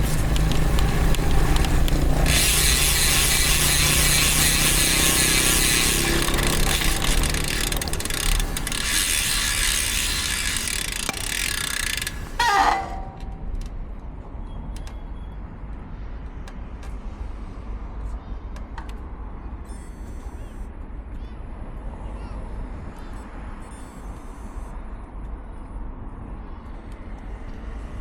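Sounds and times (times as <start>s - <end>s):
bicycle freehub buzzing: 0.0s - 13.5s
brake squeal: 0.0s - 13.6s, 19.6s - 20.7s
bicycle clicks: 0.0s - 13.8s
wind and road noise: 0.0s - 19.6s, 20.7s - 28.0s.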